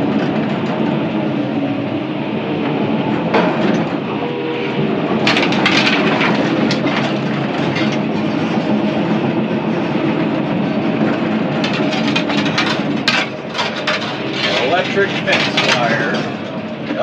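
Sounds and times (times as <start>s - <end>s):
diesel engine running: 0.0s - 17.0s
steel track rattle: 0.0s - 17.0s
sharp clacks: 10.9s - 17.0s.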